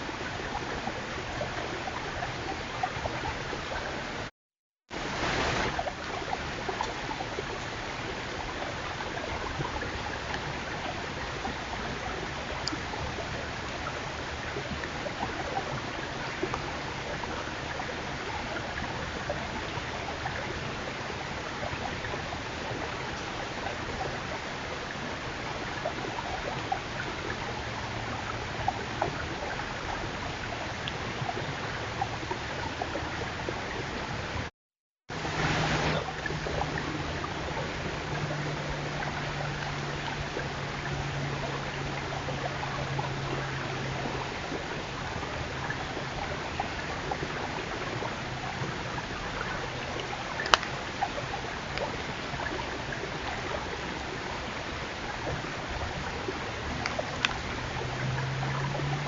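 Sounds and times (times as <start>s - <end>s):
steady hiss: 5.0s - 8.5s
faint clicks and ticks: 49.0s - 51.1s, 56.7s - 57.5s.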